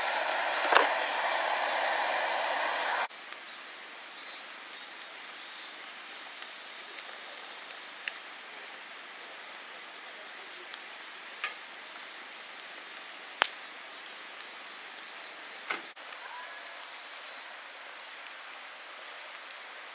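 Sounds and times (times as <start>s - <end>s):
sharp clicks or snaps: 0.0s - 3.4s, 13.4s - 13.7s
steady outdoor hiss: 0.0s - 19.9s.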